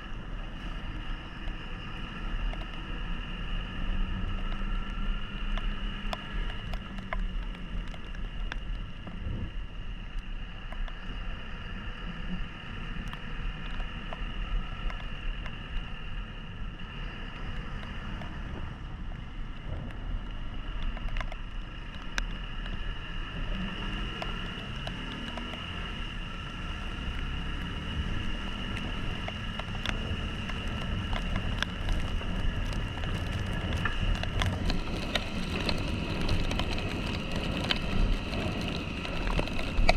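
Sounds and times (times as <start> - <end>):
motorcycle engine running: 0.0 - 39.9
road and wind rumble: 0.0 - 39.9
raindrops ticking: 20.2 - 39.9.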